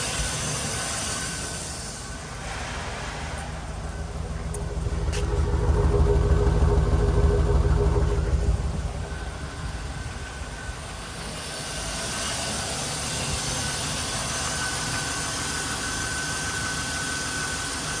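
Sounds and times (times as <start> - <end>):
truck engine idling: 2.1 - 11.4
thin even whine: 2.2 - 11.3.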